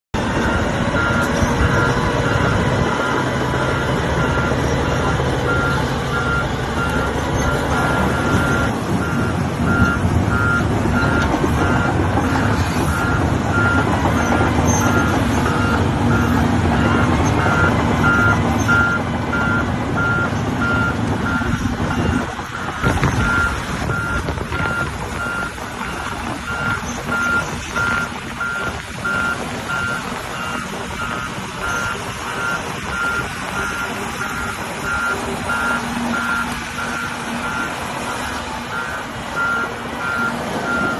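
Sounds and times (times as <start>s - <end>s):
excavator diesel engine running: 0.2s - 40.9s
reversing alarm beeping: 0.3s - 40.9s.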